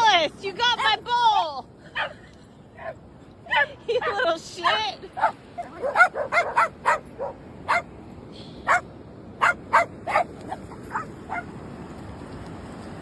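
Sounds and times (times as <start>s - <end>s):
dog barking: 2.0s - 2.2s, 2.8s - 7.9s, 8.6s - 8.8s, 9.4s - 11.5s.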